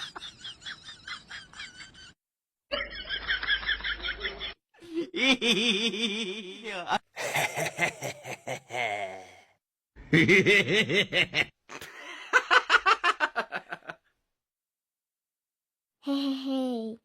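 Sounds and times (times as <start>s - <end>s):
pulsed laugh-like vocal sounds: 4.0s - 13.0s.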